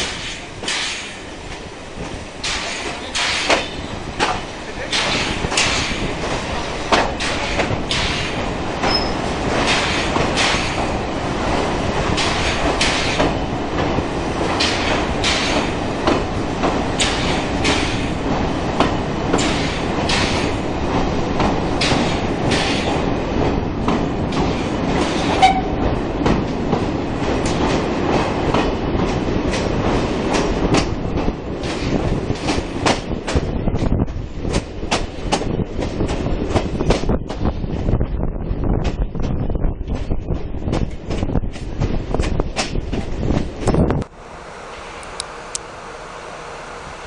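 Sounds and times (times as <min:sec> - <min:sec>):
wheels clattering over rail joints: 0:00.0 - 0:37.5
train coach rumbling: 0:00.0 - 0:47.0.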